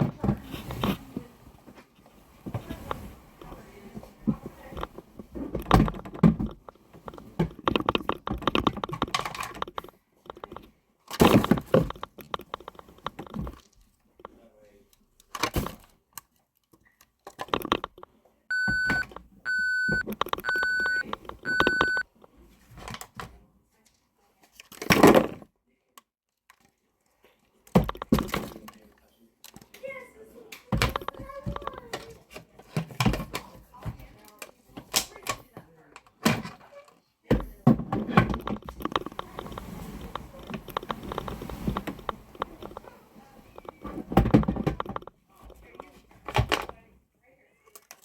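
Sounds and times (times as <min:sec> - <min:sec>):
plastic clicking and clattering: 0:02.5 - 0:18.2, 0:20.0 - 0:22.0, 0:27.6 - 0:29.9, 0:30.5 - 0:46.8, 0:47.6 - 0:48.0
small clicks knocks and rattles: 0:04.7 - 0:14.4, 0:15.2 - 0:18.1, 0:20.0 - 0:21.8, 0:27.7 - 0:28.8
toy backup beeper: 0:18.5 - 0:22.0.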